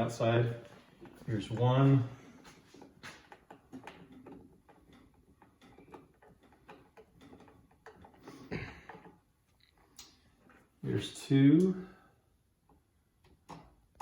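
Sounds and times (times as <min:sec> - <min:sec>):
small clicks of hand work: 0:02.4 - 0:10.7.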